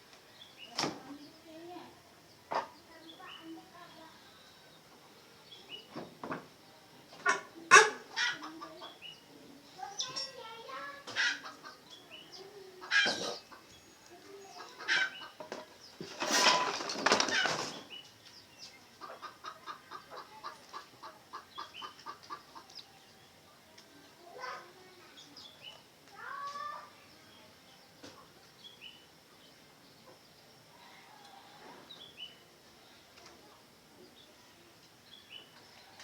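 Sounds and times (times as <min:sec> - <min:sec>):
wings flapping: 0:16.0 - 0:17.9.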